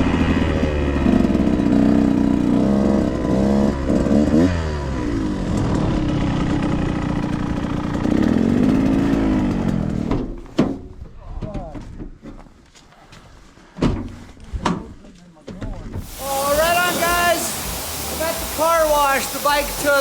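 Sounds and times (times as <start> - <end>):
dirt bike engine revving: 0.0 - 10.0, 16.0 - 20.0.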